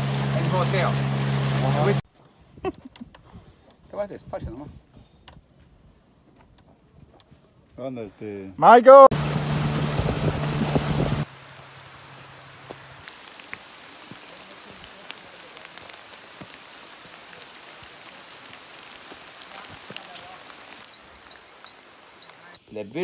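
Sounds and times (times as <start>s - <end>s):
loud rushing noise: 9.1s - 11.3s
low steady hum: 9.1s - 13.0s
faint steady hiss: 9.2s - 23.0s.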